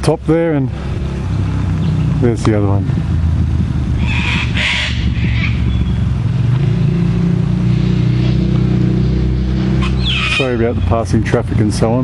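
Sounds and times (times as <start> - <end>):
road traffic passing: 0.0 - 12.0
vehicle engine running: 0.0 - 12.0
cockatoo screeching: 4.0 - 5.8, 9.8 - 10.6.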